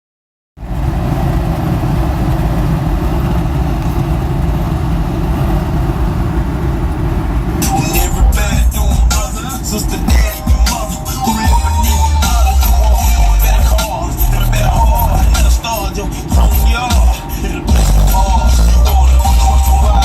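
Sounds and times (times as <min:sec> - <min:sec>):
car engine idling: 0:00.6 - 0:20.0
bass-heavy music through subwoofers: 0:07.5 - 0:20.0.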